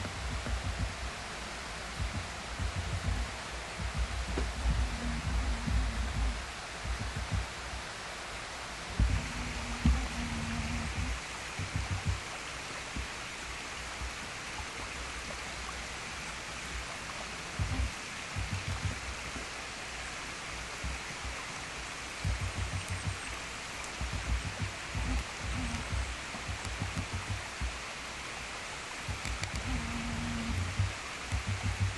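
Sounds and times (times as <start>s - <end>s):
low rumbling buffets: 0.0s - 12.4s, 15.9s - 19.4s, 29.1s - 31.9s
waterfall rushing: 0.0s - 31.9s.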